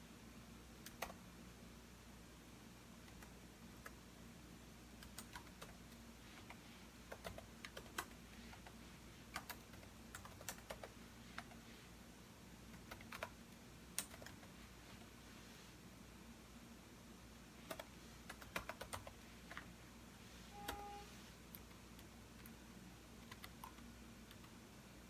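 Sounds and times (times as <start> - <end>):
faint low hum: 0.0 - 25.0
computer keyboard typing: 0.8 - 1.2, 5.0 - 11.6, 12.7 - 13.4, 14.0 - 14.6, 17.6 - 19.7, 20.6 - 22.6, 23.2 - 24.6.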